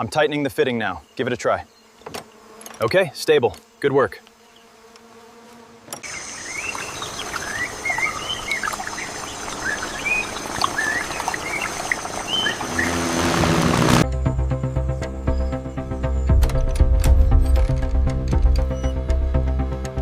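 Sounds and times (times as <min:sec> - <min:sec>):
thin high buzz: 0:01.2 - 0:14.0
bird chirps: 0:06.1 - 0:13.2, 0:14.7 - 0:16.4, 0:18.6 - 0:19.1
music: 0:13.9 - 0:20.0.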